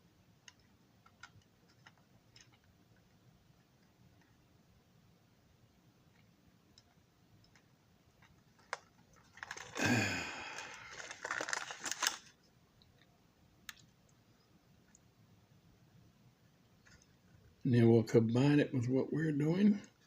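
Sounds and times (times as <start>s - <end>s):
rustling handling noise: 8.2s - 12.4s.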